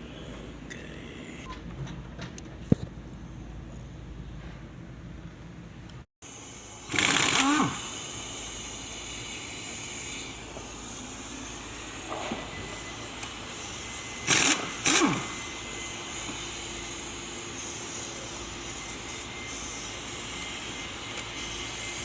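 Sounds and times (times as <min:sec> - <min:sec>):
handheld power tool bursts: 0:06.7 - 0:10.2, 0:14.1 - 0:16.4.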